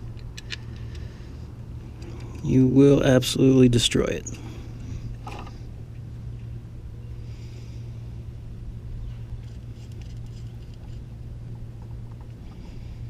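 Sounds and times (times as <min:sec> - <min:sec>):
bolts threaded by hand: 0:00.0 - 0:01.1
steady low hum: 0:00.0 - 0:13.0.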